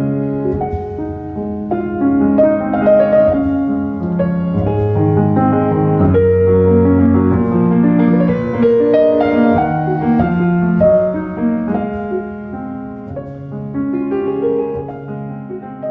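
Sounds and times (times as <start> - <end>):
slow piano melody: 0.0 - 15.9.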